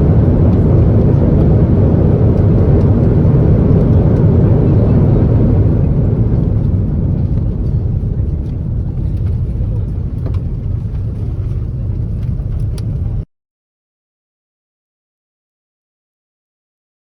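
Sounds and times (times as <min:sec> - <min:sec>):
airliner cabin rumble: 0:00.0 - 0:13.3.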